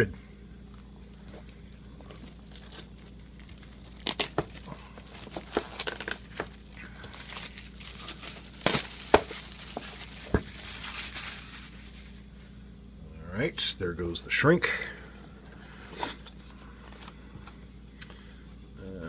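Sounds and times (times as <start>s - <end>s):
plastic shrink wrap crinkling: 1.2s - 12.3s.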